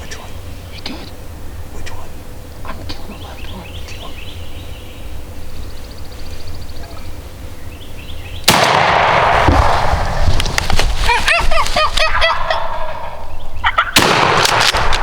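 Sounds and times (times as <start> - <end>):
shotgun blast: 8.5 - 10.0, 14.0 - 15.0
turkey calls: 10.9 - 14.1.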